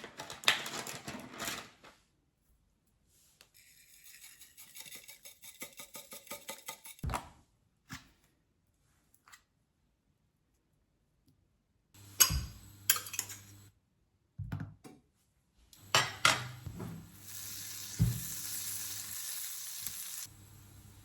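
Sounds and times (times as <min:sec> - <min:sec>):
utensils clinking on cookware: 0:03.6 - 0:07.0, 0:12.1 - 0:13.7, 0:15.8 - 0:20.3
food sizzling in a pan: 0:12.0 - 0:13.7, 0:15.8 - 0:21.0.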